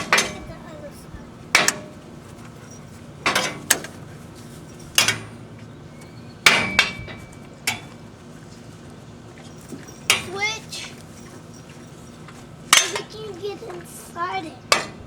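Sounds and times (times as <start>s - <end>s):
metal-on-metal clanks: 0.0s - 0.5s, 1.5s - 2.0s, 3.2s - 4.0s, 4.8s - 5.4s, 6.4s - 7.9s, 12.7s - 13.2s.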